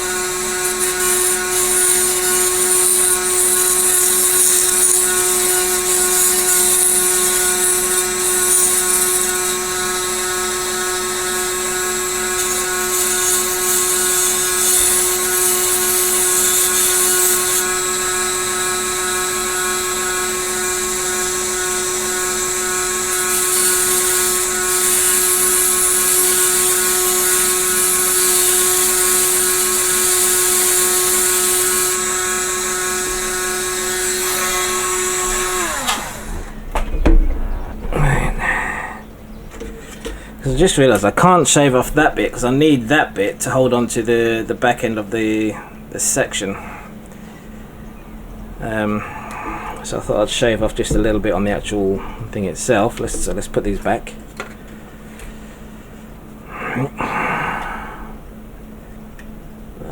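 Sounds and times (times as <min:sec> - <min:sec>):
rotary tool grinding plastic: 0:00.0 - 0:37.9.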